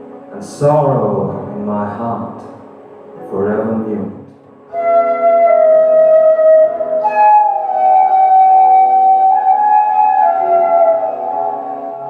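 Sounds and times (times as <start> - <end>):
flute playing slow melody: 4.5 - 12.0.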